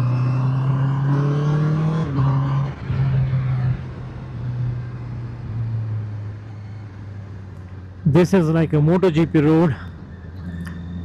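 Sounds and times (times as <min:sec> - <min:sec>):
motorcycle engine accelerating: 0:00.0 - 0:06.0
wind and road noise: 0:00.0 - 0:11.0.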